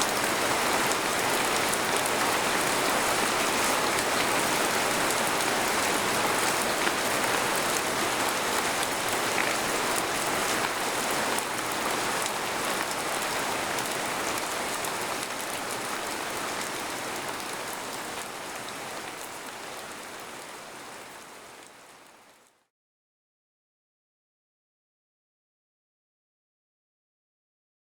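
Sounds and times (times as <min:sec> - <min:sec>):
rain falling on a tent: 0:00.0 - 0:22.7.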